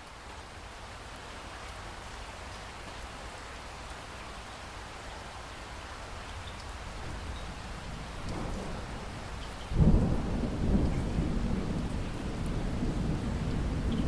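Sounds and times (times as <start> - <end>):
steady rain: 0.0 - 14.0
thunder rumbling: 7.0 - 14.0.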